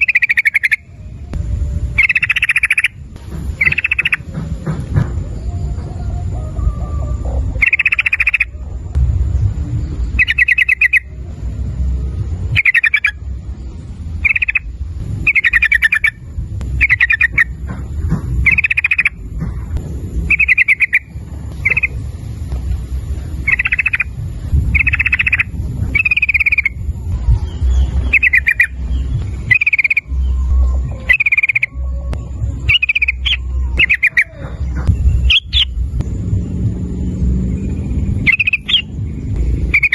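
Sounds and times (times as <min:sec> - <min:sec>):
bird calling stuttering phrases: 0:00.0 - 0:01.2, 0:01.9 - 0:04.3, 0:05.5 - 0:08.7, 0:10.1 - 0:11.2, 0:12.5 - 0:13.3, 0:14.2 - 0:19.2, 0:20.2 - 0:22.1, 0:23.4 - 0:35.8, 0:38.2 - 0:39.0, 0:39.7 - 0:39.9
low rumble: 0:00.0 - 0:39.9.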